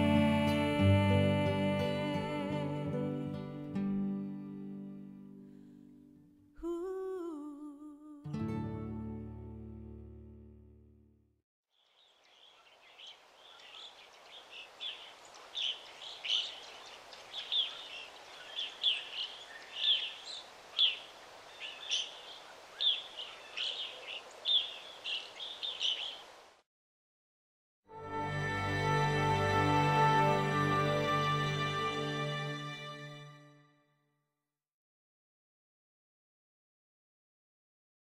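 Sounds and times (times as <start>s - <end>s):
small birds chirping: 11.8s - 26.4s
outdoor hiss: 11.8s - 26.6s.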